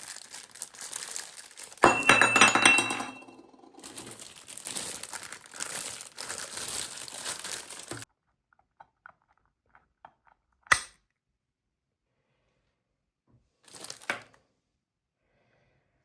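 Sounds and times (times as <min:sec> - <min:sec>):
packaging crinkling and rustling: 0:00.0 - 0:01.8, 0:03.8 - 0:08.1.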